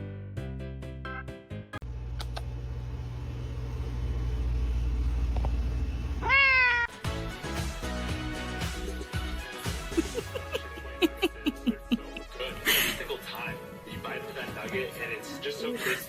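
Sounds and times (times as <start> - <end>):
steady low hum: 1.8 - 6.2
cat meowing: 6.2 - 7.0.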